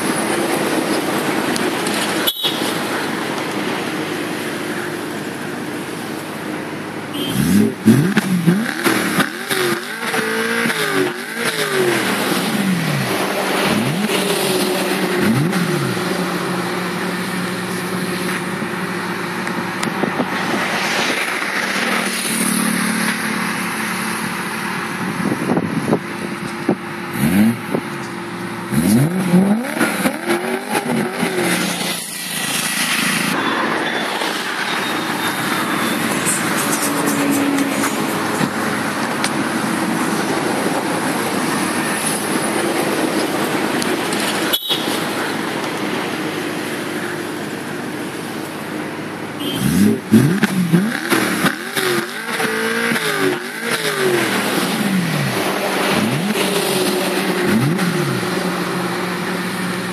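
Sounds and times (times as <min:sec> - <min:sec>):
car engine idling: 0:10.5 - 0:33.4, 0:35.0 - 0:59.9.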